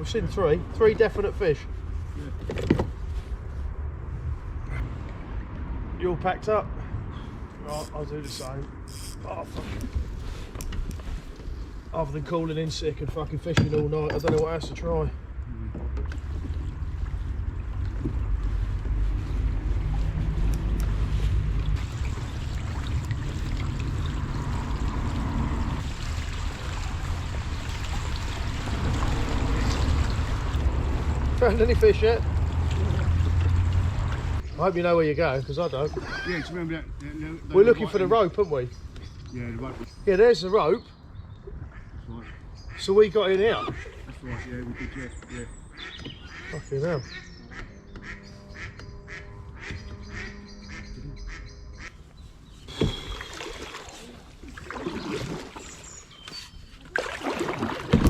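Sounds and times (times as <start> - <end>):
wind rumble on microphone: 1.7 - 7.6, 14.3 - 34.5
water trickling along kayak hull: 7.1 - 39.9, 43.4 - 58.0
ducks quacking: 41.7 - 52.0.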